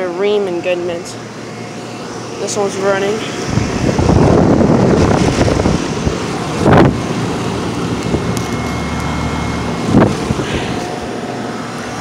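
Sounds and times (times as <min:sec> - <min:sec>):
air conditioner unit running: 0:00.0 - 0:12.0
wind buffeting microphone: 0:03.2 - 0:08.7, 0:09.6 - 0:11.3.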